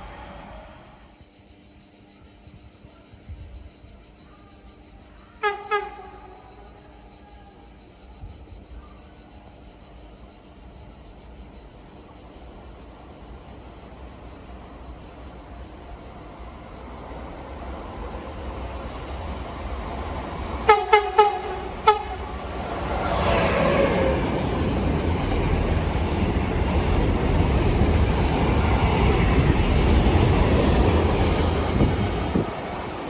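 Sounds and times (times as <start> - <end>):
train rumbling: 0.0 - 1.3, 10.8 - 33.0
train horn toots: 5.4 - 6.4, 20.6 - 24.2.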